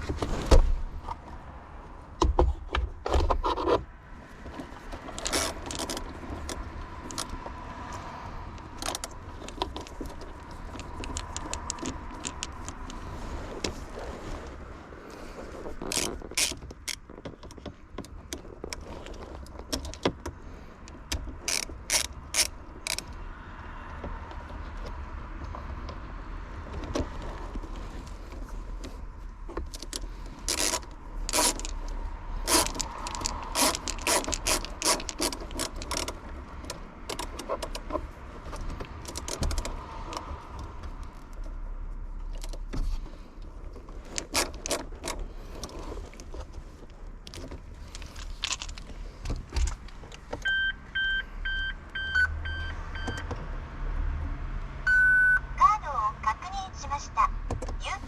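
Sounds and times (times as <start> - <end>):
hand tools clicking and clattering: 8.7 - 13.0, 32.4 - 39.7
ratchet clicking: 21.1 - 23.1, 29.8 - 36.2.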